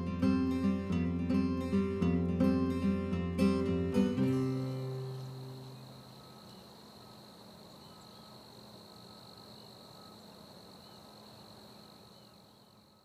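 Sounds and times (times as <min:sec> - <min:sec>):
insects trilling: 0:03.6 - 0:13.0.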